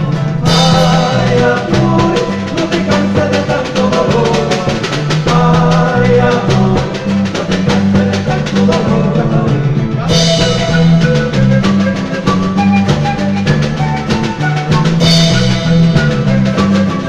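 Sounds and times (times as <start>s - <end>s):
folk band instrumental: 0.0s - 17.0s.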